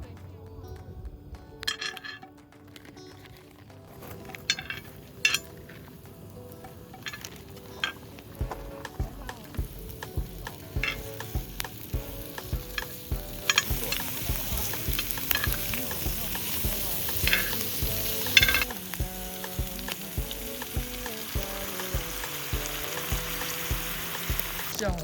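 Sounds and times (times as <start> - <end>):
food sizzling in frying pan: 4.1 - 25.0
utensil knocking against pan: 7.0 - 25.0.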